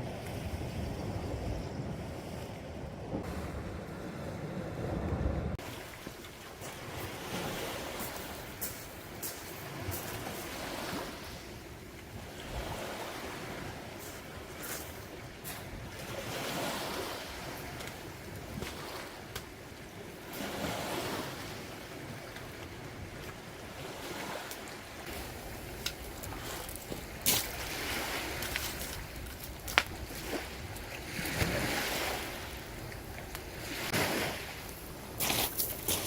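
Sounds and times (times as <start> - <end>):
sea waves washing onto beach: 5.5 - 36.0.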